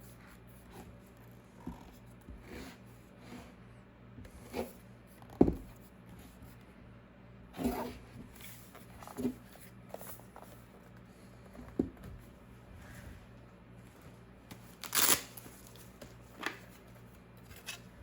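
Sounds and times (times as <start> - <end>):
packaging rustling: 14.6 - 16.6.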